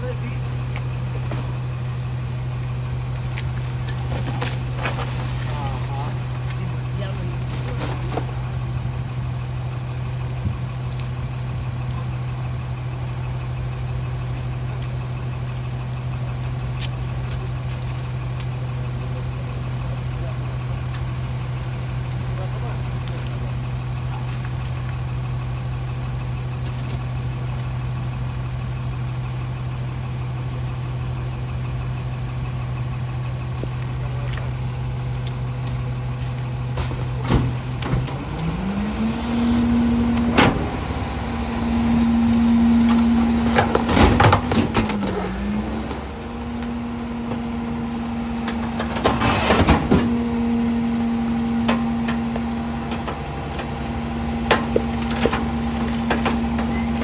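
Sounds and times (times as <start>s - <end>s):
trash crunching: 0.0s - 11.5s, 33.2s - 57.0s
diesel engine idling and revving: 0.0s - 57.0s
metal clanks: 51.6s - 57.0s.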